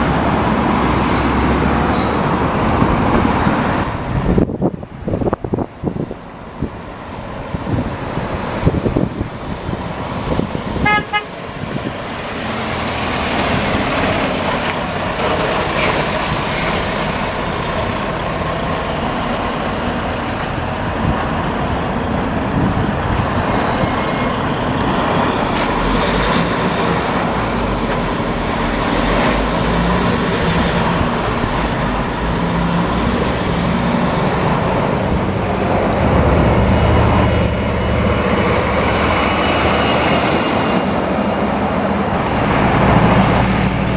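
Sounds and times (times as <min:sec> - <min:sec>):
dump trucks passing: 0:00.0 - 0:43.9
horn toot: 0:10.8 - 0:11.3.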